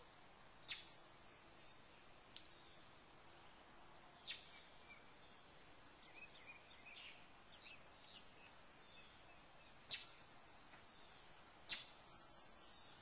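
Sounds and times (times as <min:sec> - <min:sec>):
quiet outdoor hiss: 0:00.0 - 0:13.0
faint high bird chirps: 0:00.6 - 0:01.0, 0:03.9 - 0:10.3, 0:10.9 - 0:13.0.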